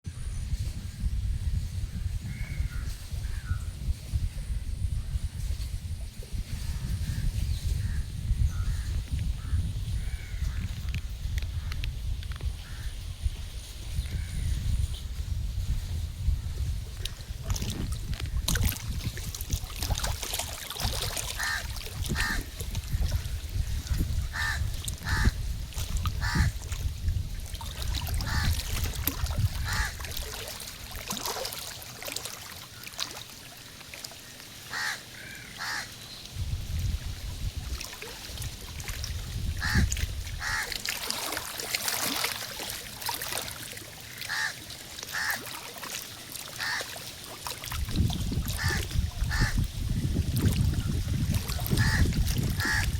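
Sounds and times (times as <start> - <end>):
birds calling: 26.2 - 26.5, 34.2 - 36.3, 44.0 - 45.4, 46.6 - 46.9, 51.8 - 52.9.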